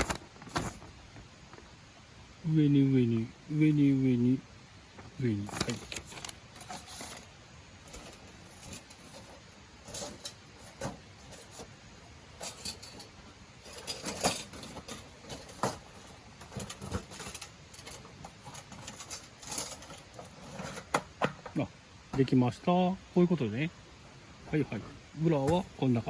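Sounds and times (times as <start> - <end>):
steel plates clinking and scraping: 5.6 - 11.7, 12.4 - 21.0.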